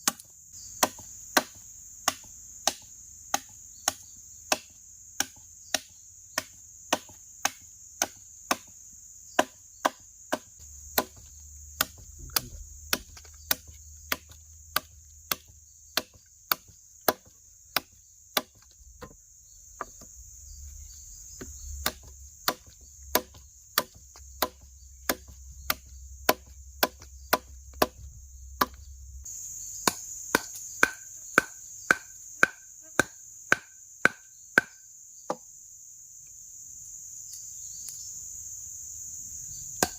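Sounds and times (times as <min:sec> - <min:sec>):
forest insects droning: 0:00.0 - 0:39.9
blade chopping strokes: 0:09.4 - 0:19.2, 0:19.8 - 0:28.9, 0:29.8 - 0:34.7.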